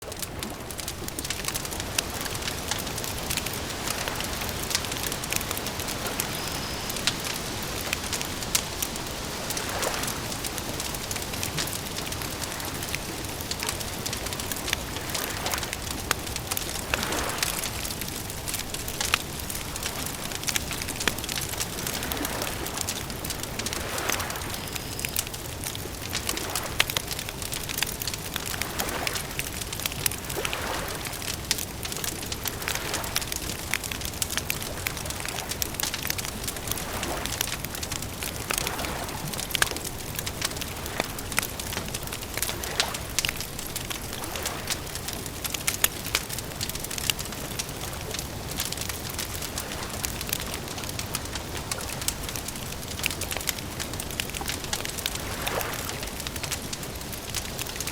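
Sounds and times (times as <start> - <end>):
wood campfire crackling: 0.0 - 57.9.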